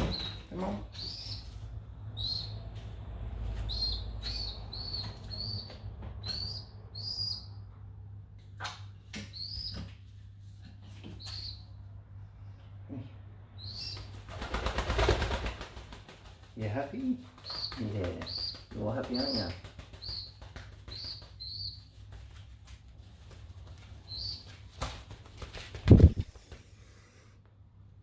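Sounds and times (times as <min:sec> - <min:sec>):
high-pitched bird chirps: 0:01.0 - 0:01.5, 0:02.2 - 0:02.6, 0:03.7 - 0:07.5, 0:09.3 - 0:09.8, 0:11.2 - 0:11.6, 0:13.6 - 0:14.0, 0:19.2 - 0:20.3, 0:20.9 - 0:21.8, 0:24.1 - 0:24.5
pigeon wings flapping: 0:13.8 - 0:26.6.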